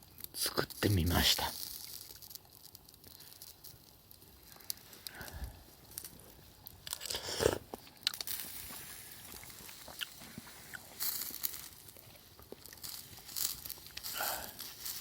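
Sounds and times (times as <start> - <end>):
person crunching and chewing: 5.9 - 15.0.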